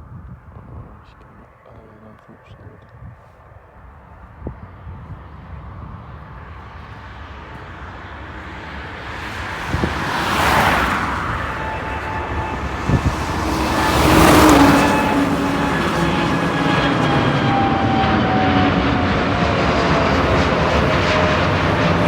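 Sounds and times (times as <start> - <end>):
jet engines whining: 4.7 - 22.0
vehicles passing close by: 4.7 - 22.0.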